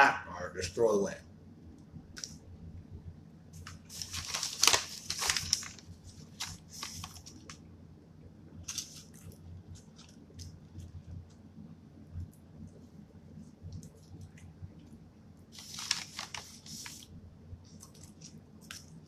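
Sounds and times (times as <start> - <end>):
food wrapper crinkling: 3.6 - 7.6, 8.6 - 11.3, 15.5 - 17.1.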